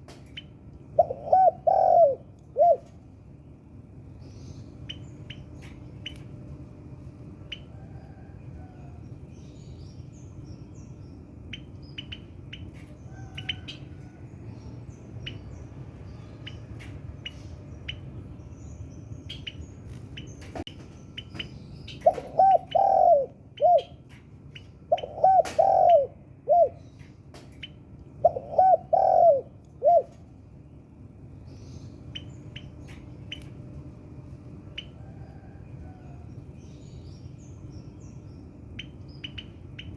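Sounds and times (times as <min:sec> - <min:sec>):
small birds chirping: 0:00.2 - 0:06.3, 0:07.4 - 0:39.9
dove cooing: 0:01.0 - 0:03.0, 0:22.0 - 0:24.0, 0:24.9 - 0:26.8, 0:28.2 - 0:30.2.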